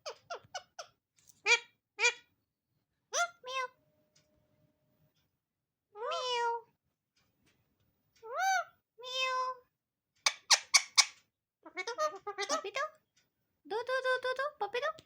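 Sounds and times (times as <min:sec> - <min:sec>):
parrot sharp screeches: 0:10.3 - 0:11.2.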